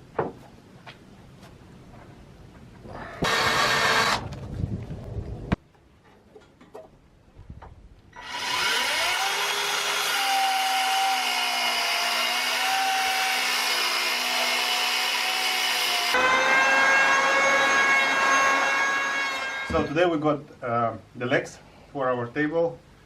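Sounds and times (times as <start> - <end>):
power tool motor whining: 3.2 - 4.3, 8.2 - 19.9
higher-pitched whine: 16.2 - 20.2.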